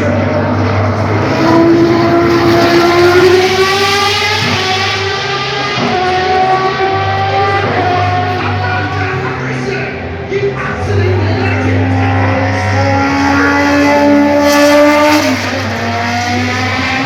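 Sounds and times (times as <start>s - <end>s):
racing car engine accelerating: 0.0s - 17.0s.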